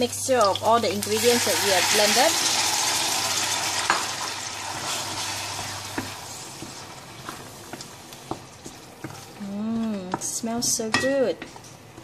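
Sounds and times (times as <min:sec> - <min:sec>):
spice paste sizzling in hot oil: 0:00.0 - 0:11.0
wooden spatula scraping a wok: 0:04.7 - 0:12.0.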